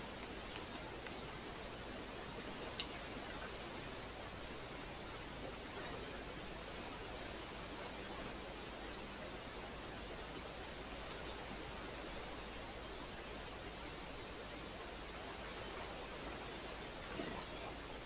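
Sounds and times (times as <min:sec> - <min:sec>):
microphone hiss: 0:00.0 - 0:18.0
faint high ticks: 0:02.7 - 0:03.4, 0:10.8 - 0:11.3, 0:17.1 - 0:17.8.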